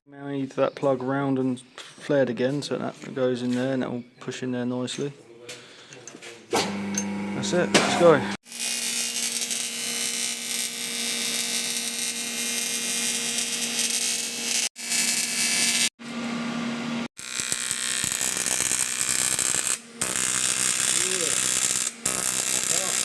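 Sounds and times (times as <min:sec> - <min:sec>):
welding arc buzzing and hissing: 0:06.7 - 0:16.3, 0:17.0 - 0:23.0.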